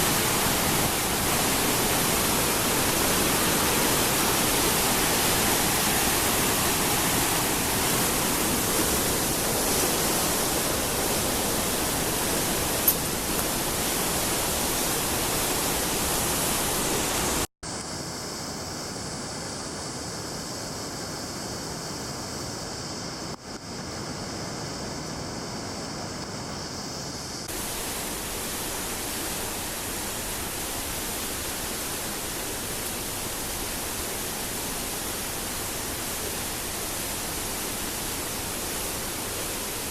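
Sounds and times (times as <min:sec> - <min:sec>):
rushing water of a stream: 0:00.0 - 0:17.5, 0:27.4 - 0:39.9.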